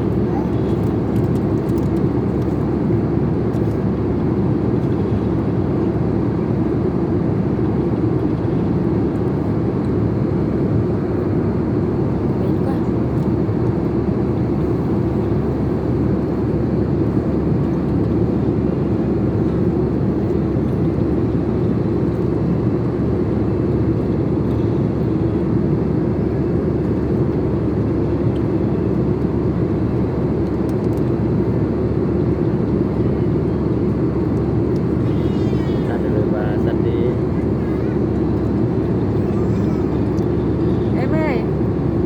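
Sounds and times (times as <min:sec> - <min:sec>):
airplane cabin engine rush: 0:00.0 - 0:42.0.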